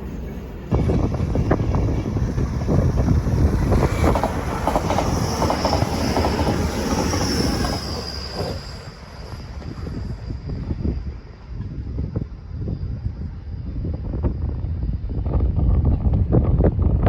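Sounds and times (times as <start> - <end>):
train rumbling past: 0.0 - 17.0.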